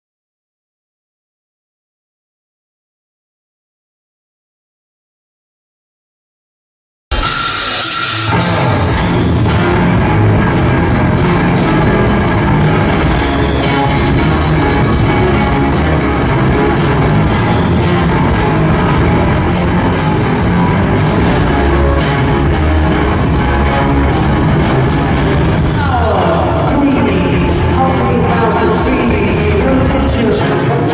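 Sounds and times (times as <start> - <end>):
rock band playing live: 7.1 - 30.9.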